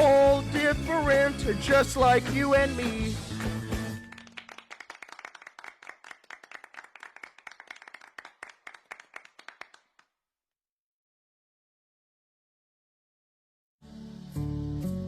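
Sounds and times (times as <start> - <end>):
small group clapping: 3.2 - 10.1.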